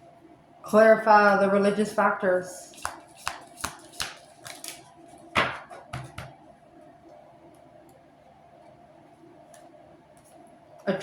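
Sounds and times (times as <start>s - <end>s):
cards tapping on a table: 2.8s - 4.6s.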